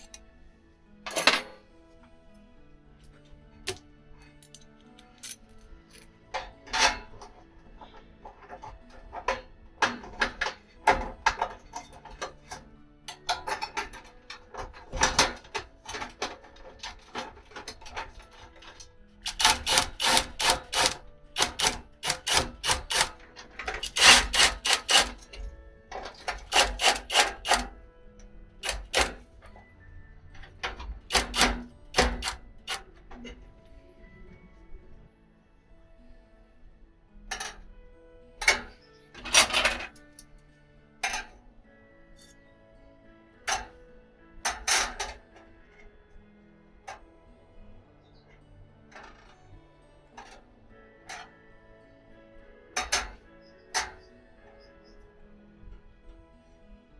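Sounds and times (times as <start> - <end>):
background music: 0.0 - 56.9
metal taps and clanks: 1.0 - 1.7, 3.0 - 33.5, 37.3 - 37.7, 38.4 - 40.3, 41.0 - 41.4, 43.4 - 43.8, 44.4 - 45.5, 52.8 - 55.0.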